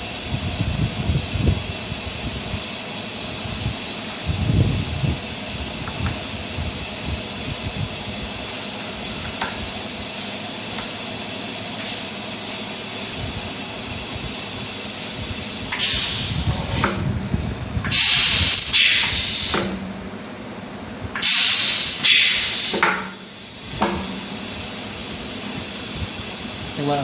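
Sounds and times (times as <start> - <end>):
machine hum: 0.0 - 27.0
compressed air hissing: 15.0 - 16.9, 17.8 - 19.7, 21.2 - 23.8.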